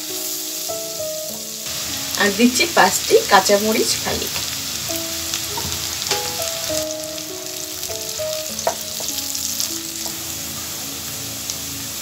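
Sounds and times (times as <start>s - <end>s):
onions sizzling in hot oil: 0.0s - 12.0s
soft background melody: 0.0s - 12.0s
wooden spatula knocking on pan: 5.5s - 6.6s, 8.5s - 9.3s.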